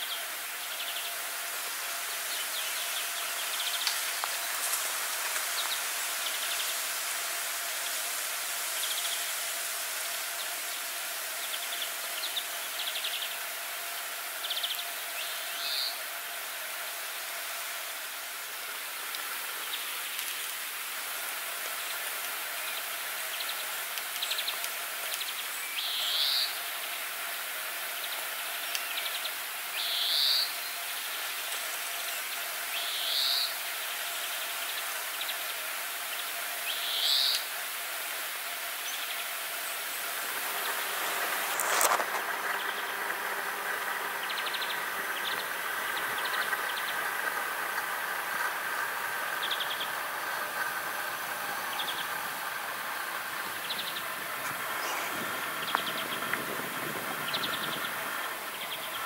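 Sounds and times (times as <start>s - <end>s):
loud high rising bird calls: 0.0s - 20.4s, 21.3s - 59.0s
background hiss: 0.0s - 59.0s
birds chirping and trilling: 14.4s - 16.0s, 32.7s - 33.6s, 44.1s - 47.2s, 48.3s - 59.0s.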